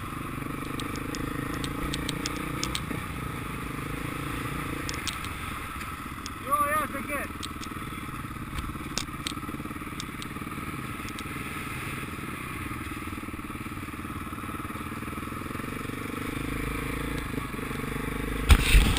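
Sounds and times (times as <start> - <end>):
motorcycle engine running: 0.0 - 18.9
sharp clicks: 0.6 - 3.0, 4.8 - 6.4, 7.3 - 7.8, 8.5 - 10.4, 11.0 - 11.3.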